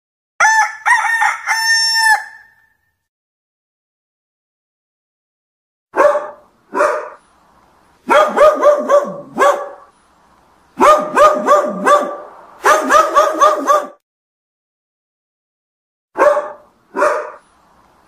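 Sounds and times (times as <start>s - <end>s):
dog barking: 5.9s - 7.2s, 8.0s - 9.9s, 10.8s - 14.0s, 16.2s - 17.5s.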